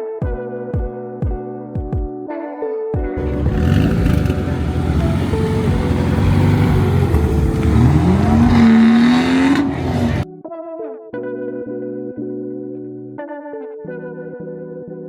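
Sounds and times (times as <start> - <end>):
car engine revving hard: 3.2 - 10.2.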